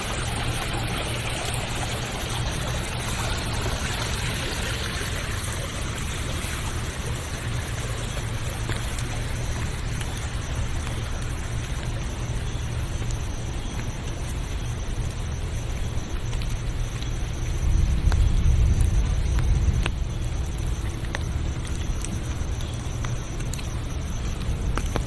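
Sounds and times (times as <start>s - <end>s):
deep low rumble: 17.6s - 22.4s.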